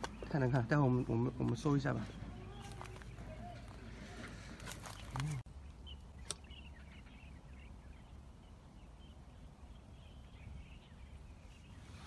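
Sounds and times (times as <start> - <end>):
distant small birds chirping: 0.0 - 12.0.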